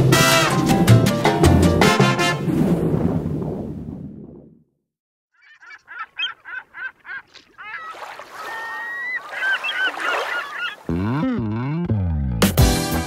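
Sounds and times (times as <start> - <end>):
birds calling: 5.4 - 11.6.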